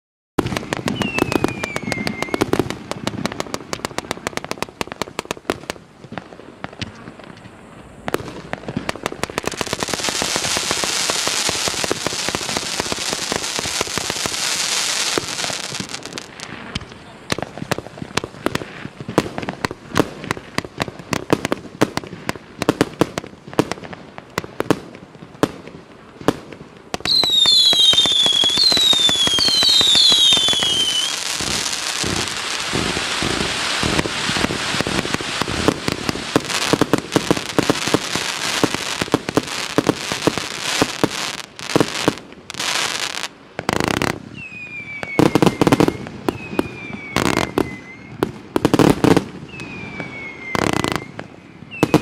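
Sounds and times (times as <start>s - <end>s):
firework bursting shots: 0.4s - 52.0s
falling whistles: 0.6s - 2.7s, 27.1s - 32.1s, 44.3s - 48.2s, 49.4s - 52.0s.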